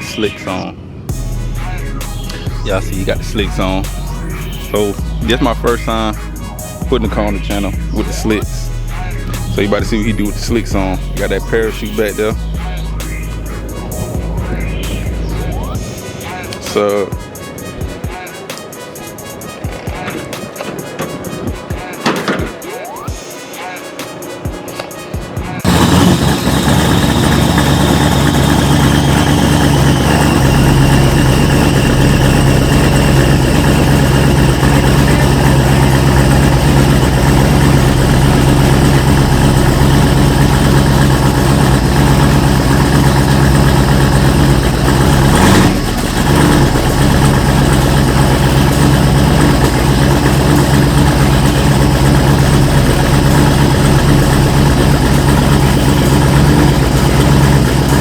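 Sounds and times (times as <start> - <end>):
drag car engine idling: 1.1 - 17.3, 25.6 - 58.0.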